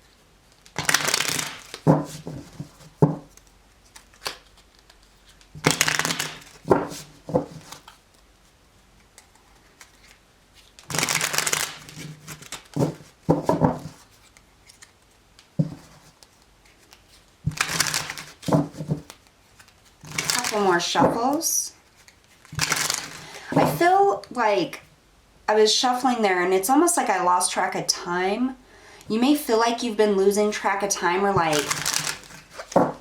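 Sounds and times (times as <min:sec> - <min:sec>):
cards being shuffled: 0:00.5 - 0:23.9, 0:31.1 - 0:33.0
cards knocking: 0:00.8 - 0:03.4, 0:05.6 - 0:07.8, 0:10.9 - 0:14.0, 0:15.6 - 0:16.0, 0:17.5 - 0:19.2, 0:20.0 - 0:21.4, 0:22.5 - 0:23.9, 0:31.4 - 0:33.0.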